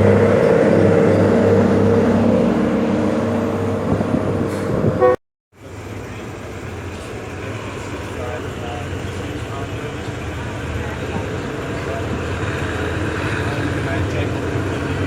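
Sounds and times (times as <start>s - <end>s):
train horn: 0.0s - 5.2s
diesel engine hum: 0.0s - 15.0s.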